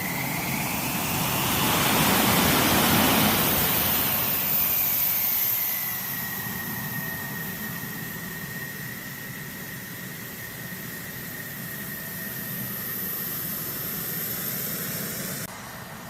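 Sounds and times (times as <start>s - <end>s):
high engine whine: 0.0s - 16.0s
jet engine rush: 0.0s - 16.0s.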